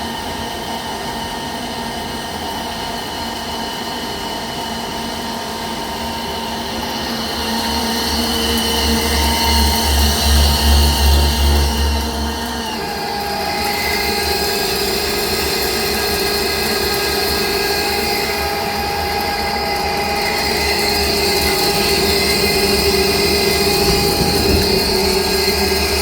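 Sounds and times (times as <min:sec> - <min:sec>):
lathe machining with held tones: 0:00.1 - 0:26.0.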